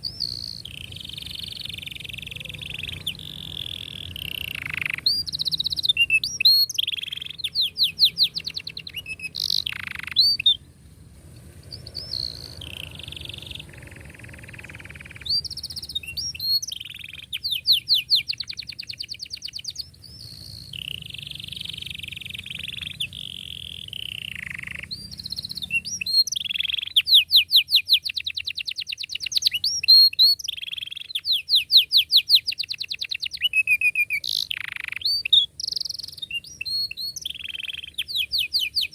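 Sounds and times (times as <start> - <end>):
canary singing: 0.0 - 10.8, 11.4 - 38.9
faint low hum: 0.0 - 26.3.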